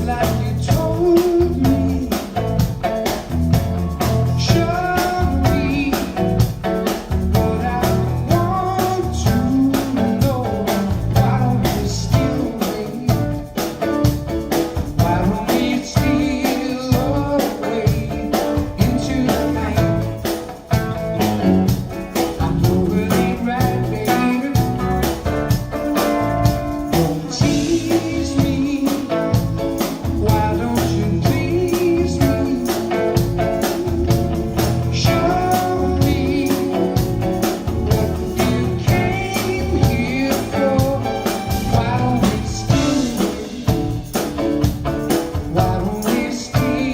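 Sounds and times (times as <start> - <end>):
drum beat: 0.0 - 46.9
live soft rock band: 0.0 - 46.9
person singing: 0.0 - 46.9.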